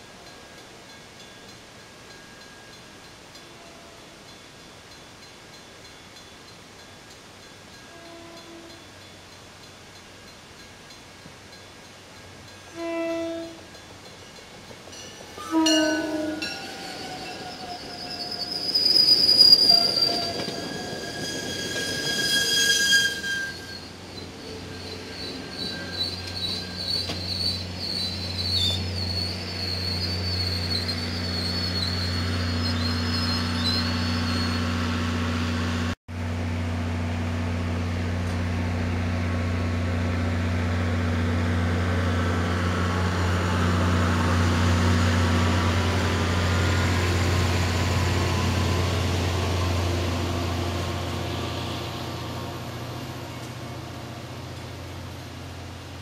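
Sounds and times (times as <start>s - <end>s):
rumble of rolling train cars: 0.0s - 56.0s
diesel locomotive hum: 11.2s - 56.0s
train wheels squealing: 12.7s - 35.4s, 44.3s - 56.0s.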